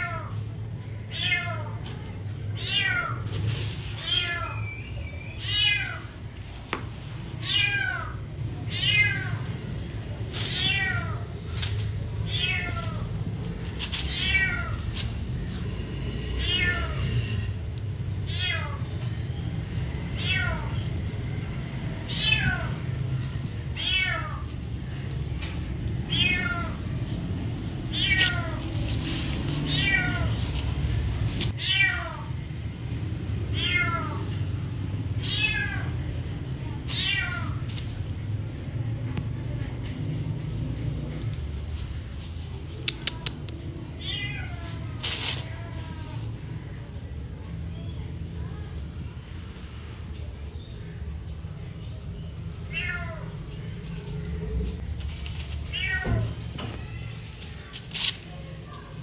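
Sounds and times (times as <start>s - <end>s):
cat meowing: 1.1s - 3.3s, 4.0s - 6.2s, 7.4s - 9.6s, 10.4s - 13.1s, 14.0s - 15.2s, 27.9s - 30.6s, 33.6s - 34.4s, 36.9s - 37.7s, 42.8s - 46.2s, 52.7s - 53.4s.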